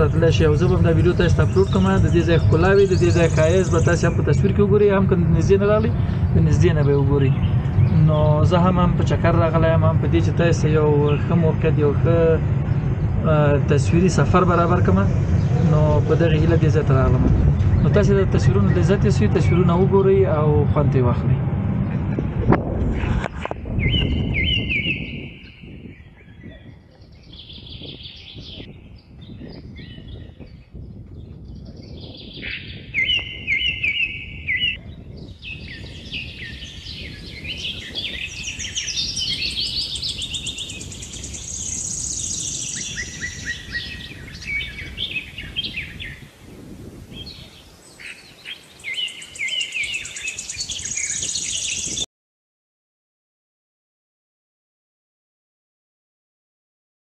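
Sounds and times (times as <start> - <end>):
songbirds chirping and singing: 0.0 - 22.2, 23.0 - 52.1
low rumble: 0.0 - 38.7.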